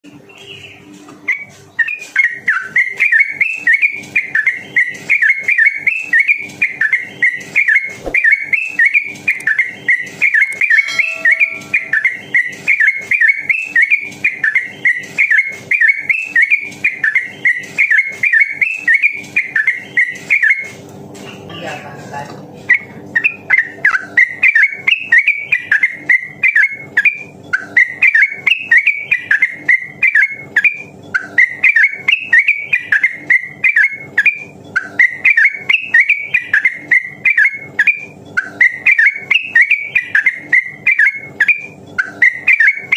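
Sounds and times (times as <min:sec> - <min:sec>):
bird whistling rapid notes: 0:01.3 - 0:20.7.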